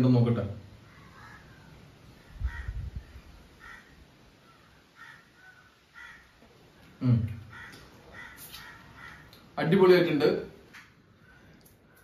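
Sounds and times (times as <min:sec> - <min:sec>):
crow cawing: 0:00.8 - 0:09.6, 0:11.2 - 0:12.0.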